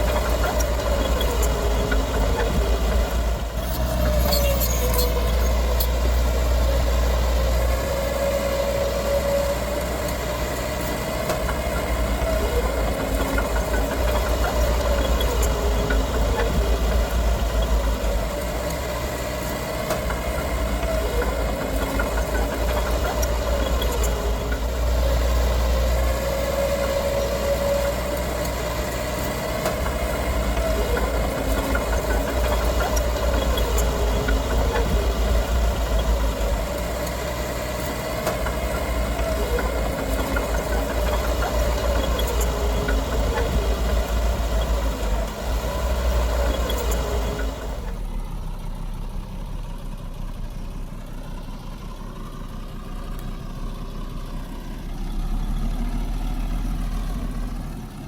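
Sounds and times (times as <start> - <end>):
heavy machinery diesel engine: 0.0 - 58.0.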